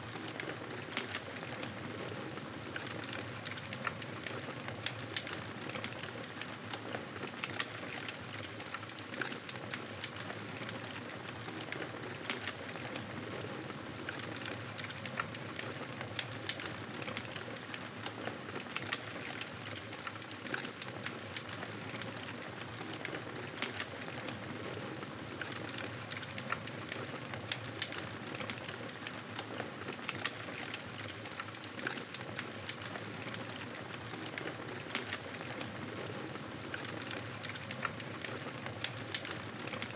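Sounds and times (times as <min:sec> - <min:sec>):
campfire crackling and popping: 0:36.7 - 0:39.9.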